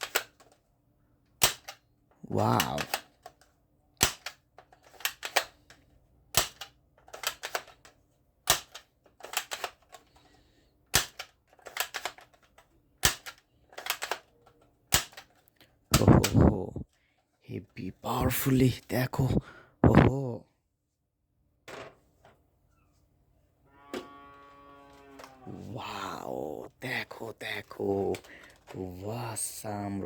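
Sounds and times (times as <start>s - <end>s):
toy gun clicking and popping: 0.0s - 0.6s, 1.4s - 10.0s, 10.9s - 14.3s, 14.9s - 16.5s.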